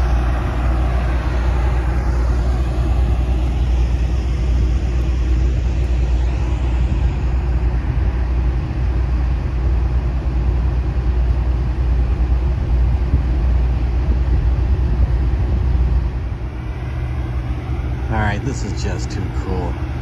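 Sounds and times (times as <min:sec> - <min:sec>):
diesel locomotive rumbling: 0:00.0 - 0:20.0.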